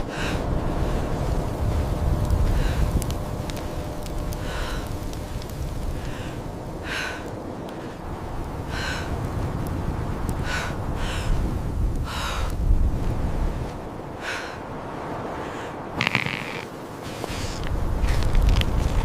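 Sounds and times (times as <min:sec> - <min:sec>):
person breathing hard: 0:00.0 - 0:09.3, 0:10.4 - 0:12.6, 0:14.1 - 0:14.7
low wind rumble: 0:00.0 - 0:19.0.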